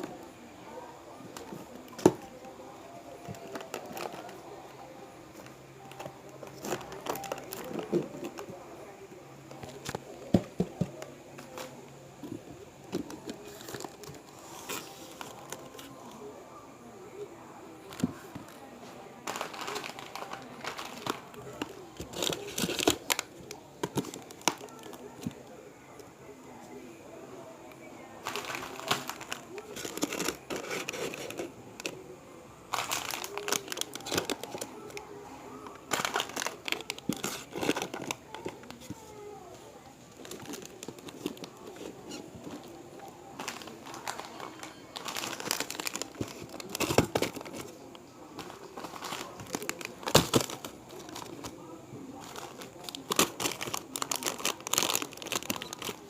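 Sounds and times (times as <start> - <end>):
paper and cardboard crinkling: 3.2 - 4.4, 5.3 - 8.6, 19.2 - 25.4, 28.2 - 32.0, 32.7 - 35.0, 35.6 - 39.2, 40.1 - 51.6, 52.2 - 56.0.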